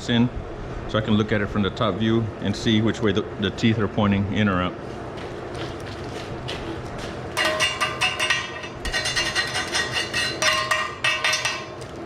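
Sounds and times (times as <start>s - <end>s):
metal-on-metal strikes: 7.4s - 11.9s
steel barrel ringing: 7.4s - 12.0s.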